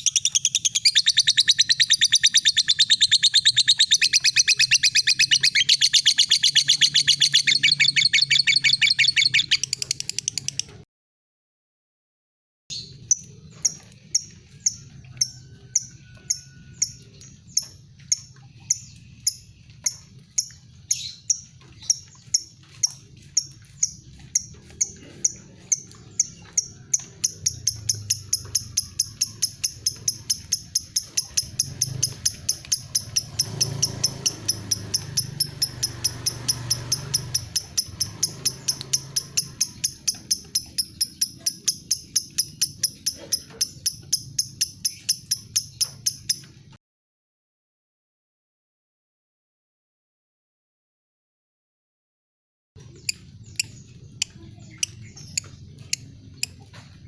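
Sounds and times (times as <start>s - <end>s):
lovebird ticking chirps: 0.0s - 10.7s, 13.1s - 46.5s.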